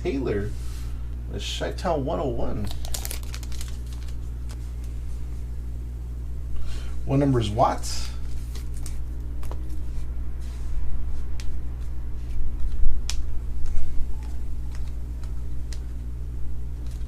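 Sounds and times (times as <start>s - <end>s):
low electrical hum: 0.0s - 17.0s
sharp clicks of card packaging: 2.6s - 4.6s
soft rustles of cards: 2.6s - 5.5s, 8.1s - 16.1s, 16.7s - 17.0s.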